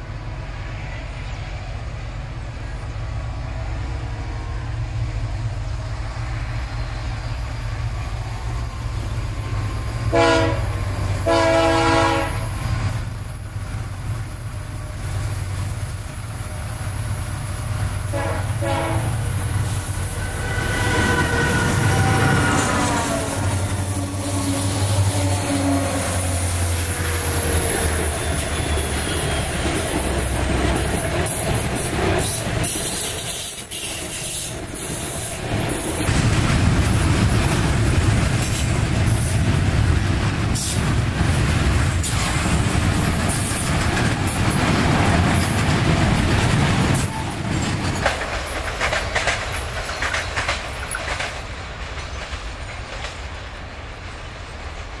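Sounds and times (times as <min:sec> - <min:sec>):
diesel locomotive engines droning: 0:00.0 - 0:55.0
wagon wheels clacking over rail joints: 0:28.2 - 0:53.5.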